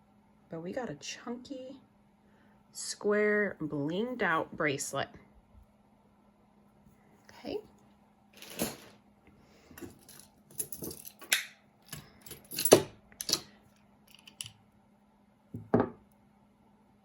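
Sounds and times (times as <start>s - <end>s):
jewelry clinking and rattling: 8.4s - 9.0s, 9.8s - 13.5s.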